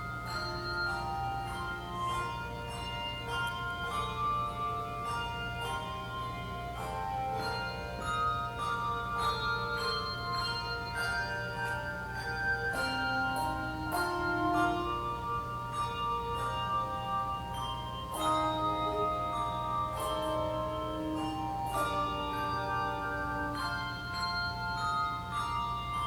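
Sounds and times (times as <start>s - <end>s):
handbells ringing a tune: 0.0s - 26.0s.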